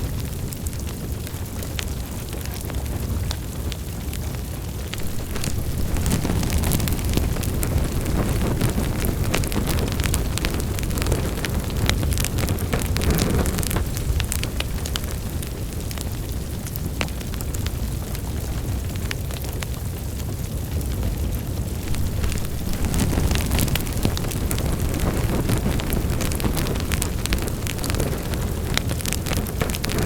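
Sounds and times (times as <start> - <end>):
low rumble of flames: 0.0 - 30.0
wood fire crackling: 0.0 - 30.0.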